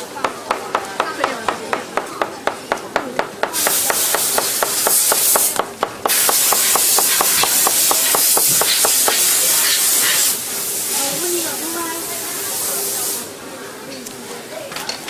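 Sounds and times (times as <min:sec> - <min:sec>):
loud steady air hiss: 0:03.2 - 0:13.6.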